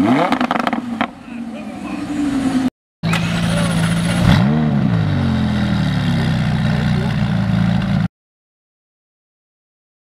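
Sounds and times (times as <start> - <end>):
car engine idling: 0.9 - 8.0.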